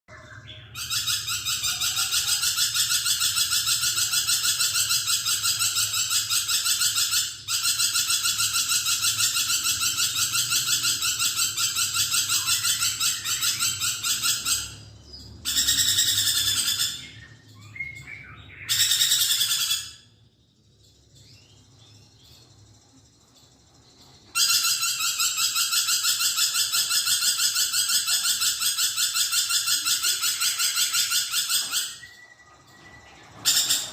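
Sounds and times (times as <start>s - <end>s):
lorikeet shrill chatter: 0.1s - 33.9s.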